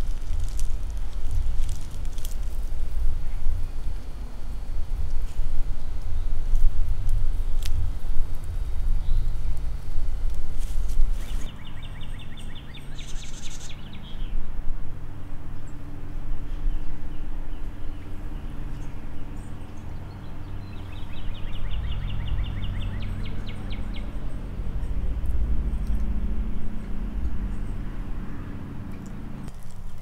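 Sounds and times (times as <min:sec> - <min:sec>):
songbird trilling: 0:11.2 - 0:14.4, 0:17.8 - 0:25.0
lawn mower engine humming: 0:18.3 - 0:30.0.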